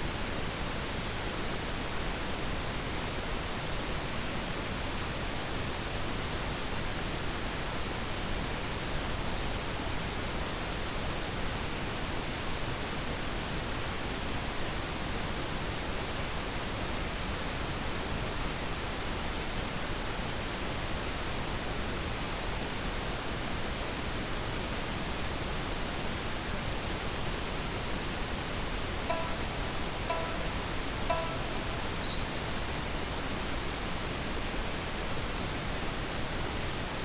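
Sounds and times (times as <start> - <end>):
timer signal ringing notes: 29.1 - 32.9.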